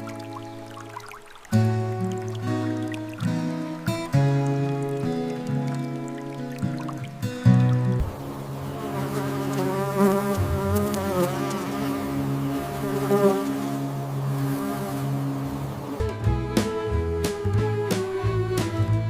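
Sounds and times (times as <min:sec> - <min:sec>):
flying insect buzzing: 0:08.0 - 0:15.5.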